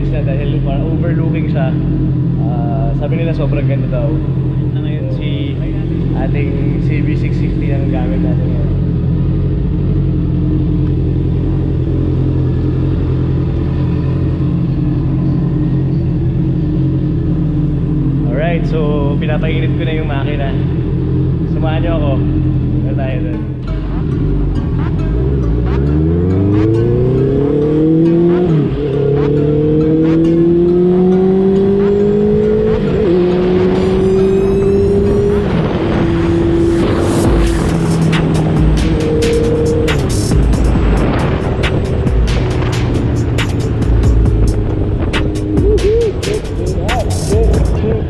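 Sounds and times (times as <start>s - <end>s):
motorcycle engine idling: 0.0s - 26.1s, 37.2s - 48.0s.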